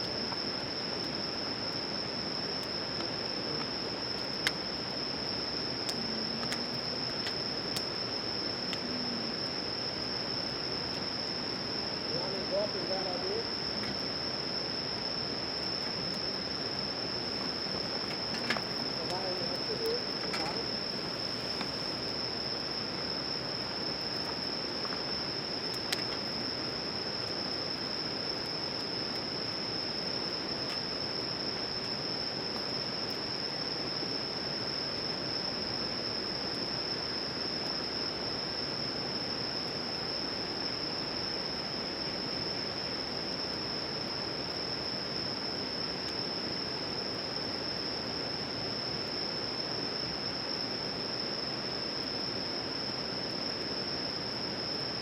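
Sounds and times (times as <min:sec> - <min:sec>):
insects chirping chorus: 0:00.0 - 0:55.0.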